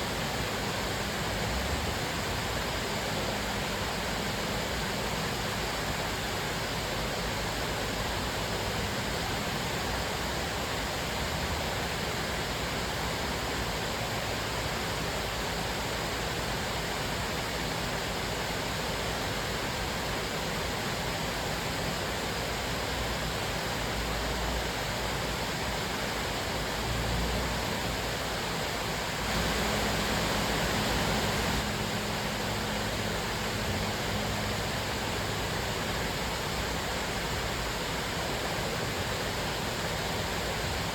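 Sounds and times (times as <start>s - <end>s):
waterfall rushing: 27.0s - 40.9s.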